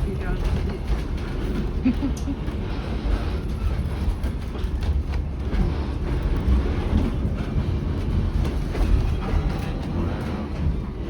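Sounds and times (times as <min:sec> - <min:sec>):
wheels rumbling on track: 0:00.0 - 0:11.0.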